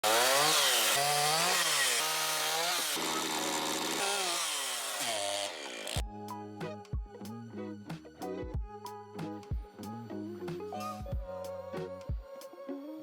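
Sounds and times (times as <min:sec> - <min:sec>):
chainsaw revving: 0:00.0 - 0:06.0
music: 0:06.0 - 0:13.0.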